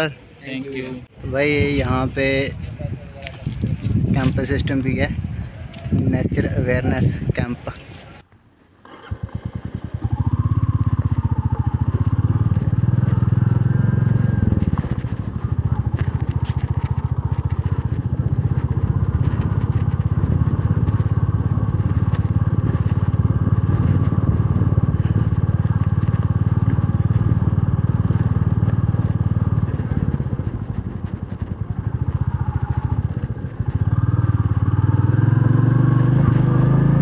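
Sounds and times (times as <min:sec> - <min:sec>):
motorcycle engine running: 0:08.8 - 0:37.0.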